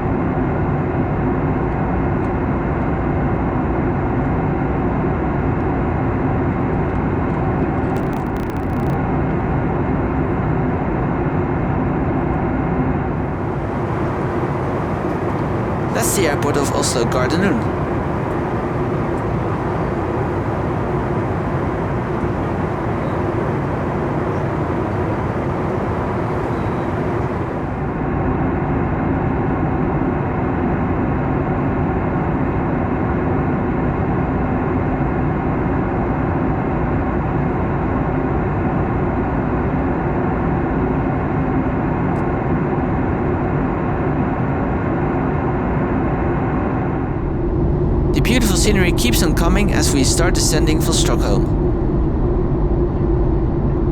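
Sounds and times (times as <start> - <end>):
jet engine hum: 8.0 - 9.0, 13.1 - 28.0, 47.3 - 51.9
airplane cabin air rushing: 13.1 - 28.0, 47.6 - 51.8.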